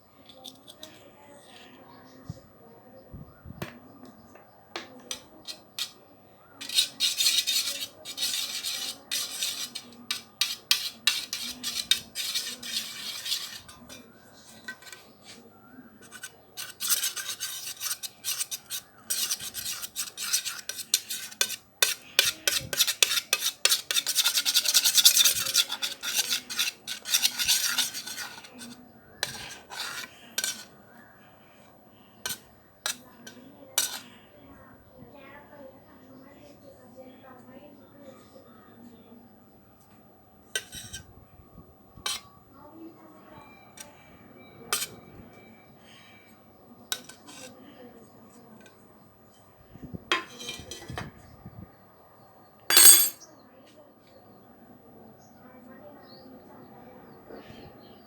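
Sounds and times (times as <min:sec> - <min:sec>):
spoon scraping a bowl: 0:00.2 - 0:01.0, 0:05.0 - 0:06.0, 0:06.6 - 0:30.8, 0:32.2 - 0:34.2, 0:40.6 - 0:41.1, 0:42.0 - 0:42.3, 0:44.7 - 0:45.0, 0:46.9 - 0:47.6, 0:50.1 - 0:51.0, 0:52.7 - 0:53.2
spoon clinks and taps: 0:52.7 - 0:53.2.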